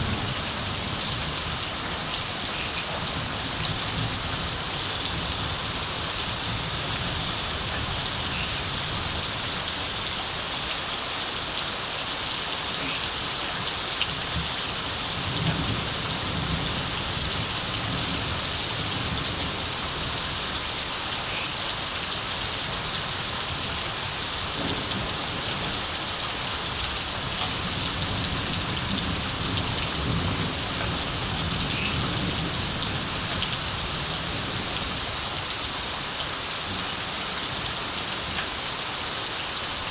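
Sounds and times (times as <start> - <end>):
distant thunder rumbling: 0.0 - 5.6
steady rain falling: 0.0 - 39.9.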